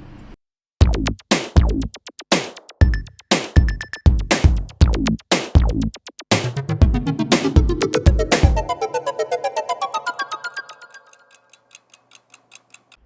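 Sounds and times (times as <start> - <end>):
drum machine beat: 0.8 - 11.0
short high synth notes: 6.5 - 11.4.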